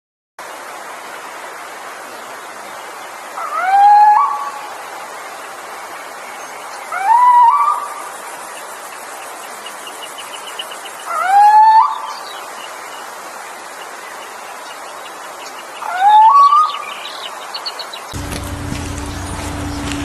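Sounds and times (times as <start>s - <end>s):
steady background hiss: 0.4s - 20.0s
bird whistled rising call: 3.4s - 4.6s, 6.9s - 8.0s, 11.0s - 12.4s, 15.8s - 17.8s.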